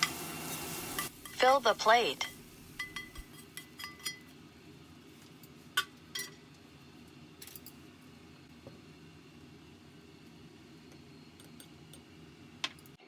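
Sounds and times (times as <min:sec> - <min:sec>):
utensil clinking on dishware: 0:02.2 - 0:04.3.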